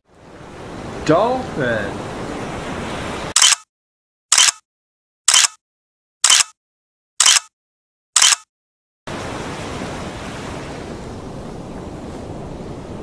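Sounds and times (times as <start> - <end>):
surf noise: 0.0 - 3.4, 9.1 - 13.0
short sharp clicks: 3.4 - 3.7, 4.3 - 4.6, 5.3 - 5.6, 6.2 - 6.6, 7.2 - 7.5, 8.2 - 8.5.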